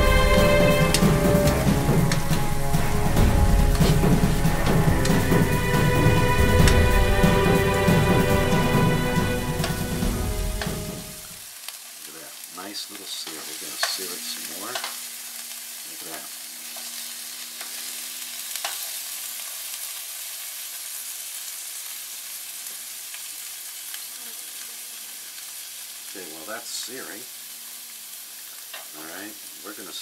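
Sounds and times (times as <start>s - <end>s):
music: 0.0s - 11.4s
fish sizzling in a frying pan: 0.0s - 30.0s.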